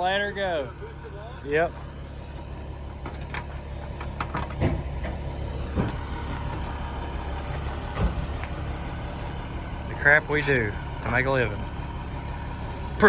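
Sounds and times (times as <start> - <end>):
truck engine idling: 0.0 - 13.0
short knocks and clunks: 2.9 - 6.8, 7.6 - 8.6.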